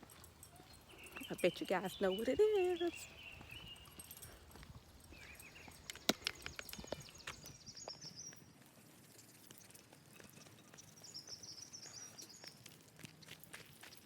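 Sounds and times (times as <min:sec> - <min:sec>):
footsteps crunching on forest floor: 0:00.1 - 0:14.0
high chirping: 0:00.4 - 0:08.5.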